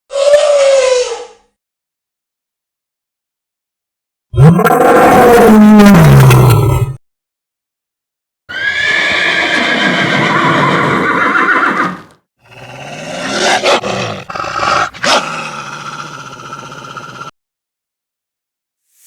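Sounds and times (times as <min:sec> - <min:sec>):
horse whinnying: 0:08.5 - 0:12.1.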